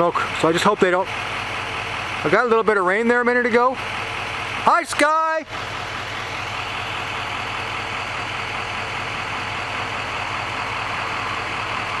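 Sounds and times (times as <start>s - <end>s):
engine-like drone: 0.0s - 12.0s.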